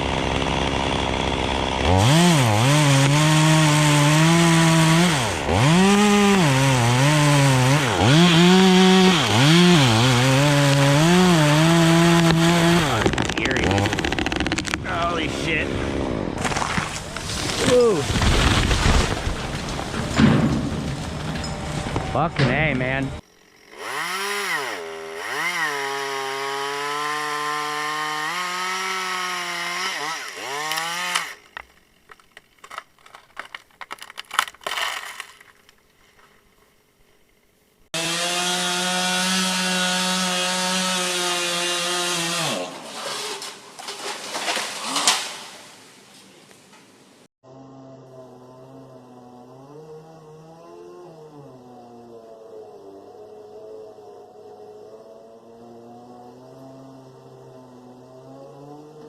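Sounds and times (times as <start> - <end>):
chainsaw cutting wood: 0.0 - 15.2, 15.9 - 35.6, 37.9 - 45.4, 47.5 - 52.3.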